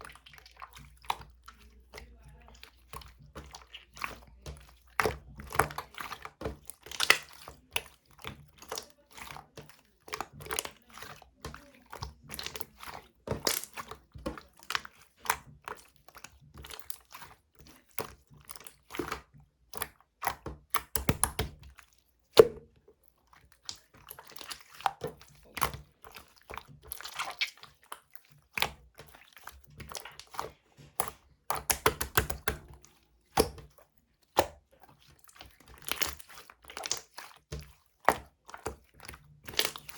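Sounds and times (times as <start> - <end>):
slime squishing and popping: 2.6 - 17.3, 17.9 - 22.6, 23.5 - 39.9.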